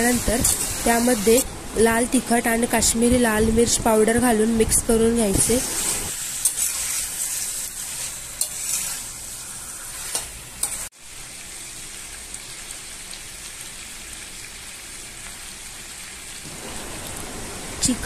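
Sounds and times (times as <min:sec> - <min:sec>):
spatula scraping a pan: 0:05.4 - 0:10.9
chicken frying in a pan: 0:05.5 - 0:16.6.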